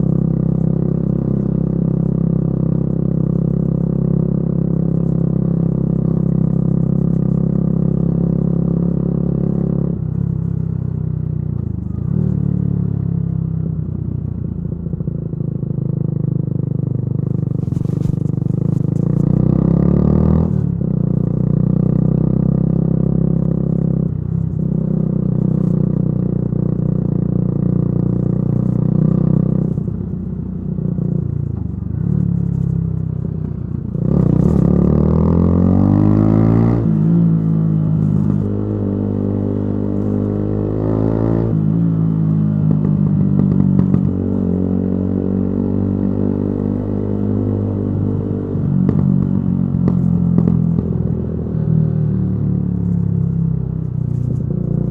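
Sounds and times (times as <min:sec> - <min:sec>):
motorcycle engine revving: 0:14.9 - 0:54.9.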